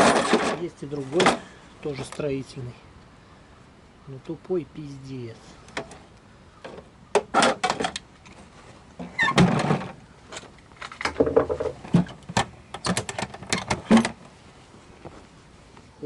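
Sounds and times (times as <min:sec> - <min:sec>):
sharp clicks and knocks: 0:09.3 - 0:14.2.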